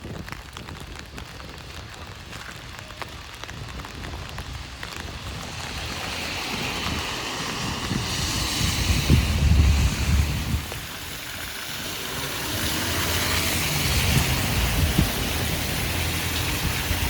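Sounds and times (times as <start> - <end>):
rain pattering on an umbrella: 0.0 - 17.0
tyres hissing on wet road: 0.0 - 17.0
low rumble: 5.2 - 17.0.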